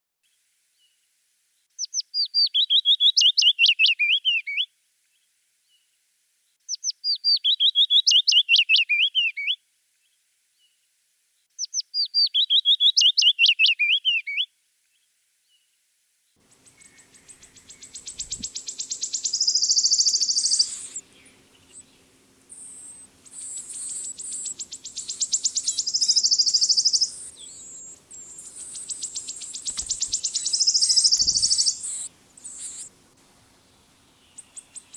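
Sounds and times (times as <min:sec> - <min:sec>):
willow warbler singing: 0:01.8 - 0:04.6, 0:06.7 - 0:09.5, 0:11.6 - 0:14.4, 0:16.5 - 0:34.9
wood warbler high trill: 0:01.8 - 0:04.6, 0:06.7 - 0:09.6, 0:11.6 - 0:14.4, 0:16.5 - 0:33.0, 0:33.6 - 0:34.9.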